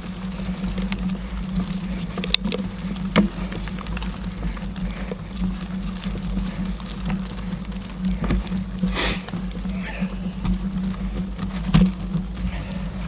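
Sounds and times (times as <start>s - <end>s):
tyres rumbling on dirt: 0.0s - 13.0s
wind: 0.0s - 13.0s.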